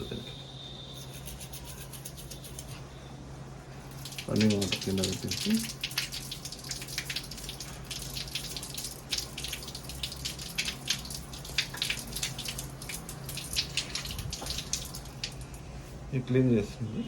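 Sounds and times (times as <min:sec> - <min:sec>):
tap water running and splashing: 0:03.9 - 0:15.6.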